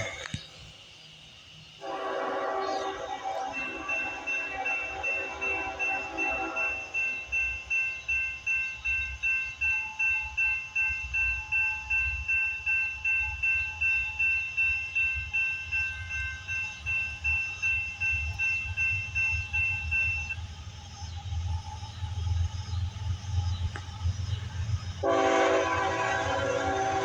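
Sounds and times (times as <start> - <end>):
freight train rumbling: 0.0 - 27.0
sustained horn chord: 1.8 - 7.6, 25.0 - 27.0
crossing warning bell ringing: 1.8 - 20.5, 24.3 - 27.0.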